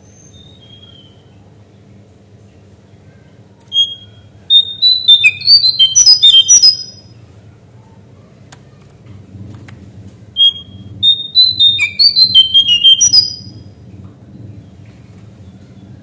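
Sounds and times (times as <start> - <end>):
bird whistling song: 0.0 - 1.3, 3.7 - 7.1, 10.4 - 13.6
faint low hum: 0.0 - 16.0.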